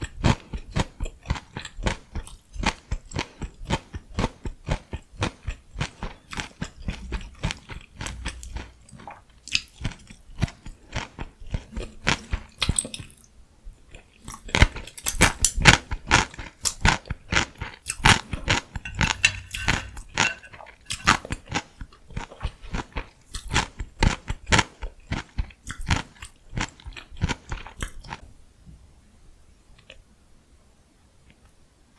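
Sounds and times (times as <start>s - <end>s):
crisp chewing crunches: 0.1s - 13.3s.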